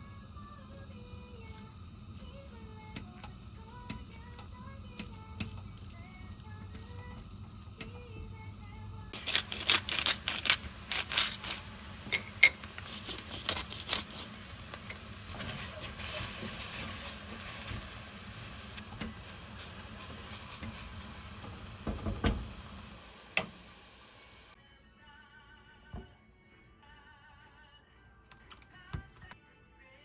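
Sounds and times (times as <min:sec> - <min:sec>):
utensil clicking and scraping: 0:09.1 - 0:17.5
sizzling hiss: 0:09.1 - 0:24.6.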